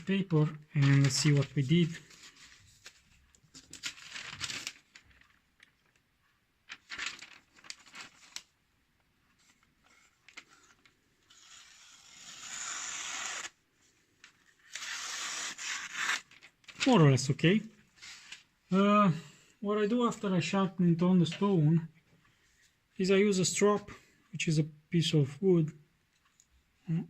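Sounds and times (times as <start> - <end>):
paper rustling: 0.0 - 8.6, 9.3 - 11.6, 14.1 - 17.2
knife slicing paper: 11.3 - 13.6, 14.7 - 16.4.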